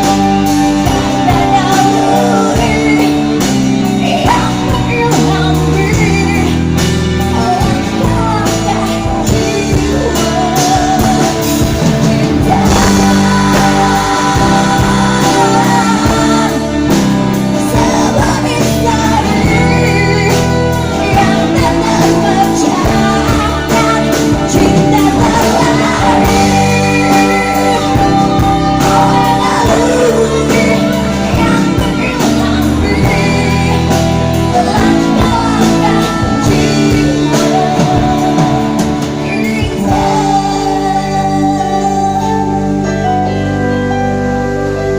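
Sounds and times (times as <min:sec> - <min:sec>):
pop band backing: 0:00.0 - 0:44.9
woman singing: 0:00.0 - 0:44.9.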